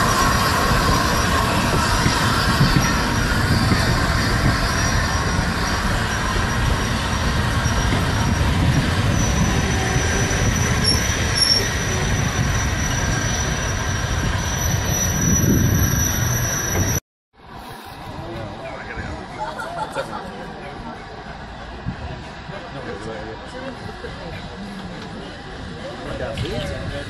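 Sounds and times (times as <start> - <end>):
high wheel squeal: 0.0 - 18.0
train rumbling on rails: 0.0 - 27.0.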